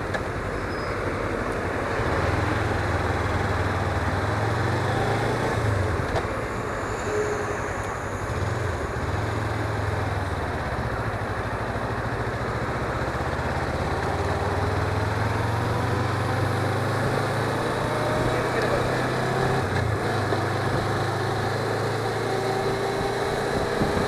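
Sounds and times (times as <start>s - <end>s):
wind and road noise: 0.0s - 24.0s
motorcycle engine running: 9.0s - 24.0s.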